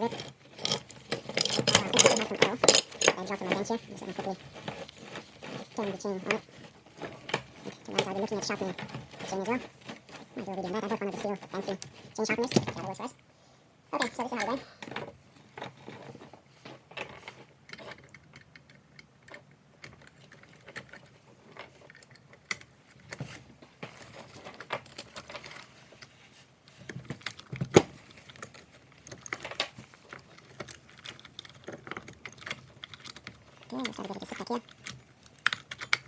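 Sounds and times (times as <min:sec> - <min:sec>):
metallic clicks of chain links: 0:00.0 - 0:03.6.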